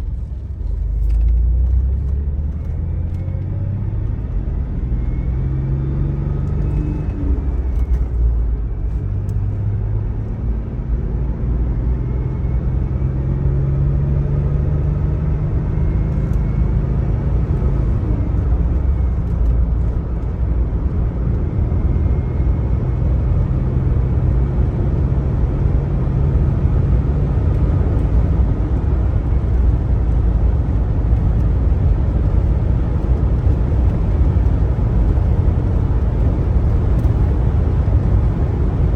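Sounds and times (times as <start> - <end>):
car engine rumbling while driving: 0.0 - 38.9.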